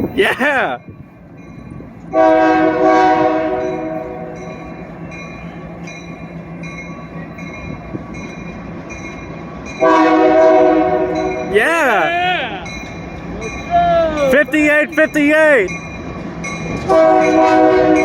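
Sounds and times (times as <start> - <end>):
rumble of approaching train: 0.0 - 18.0
locomotive air horn blast: 2.1 - 4.4, 9.8 - 11.5, 16.9 - 18.0.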